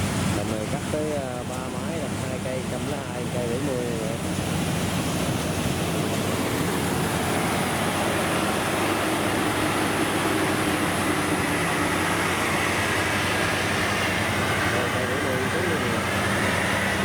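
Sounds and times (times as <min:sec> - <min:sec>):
combine harvester engine running: 0:00.0 - 0:17.0
faint machine whine: 0:08.8 - 0:17.0.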